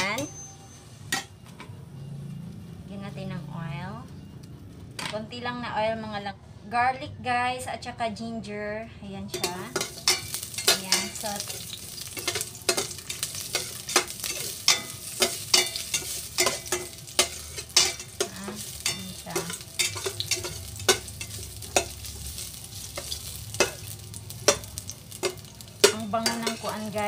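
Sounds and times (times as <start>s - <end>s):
garlic sizzling in hot oil: 9.3s - 27.0s.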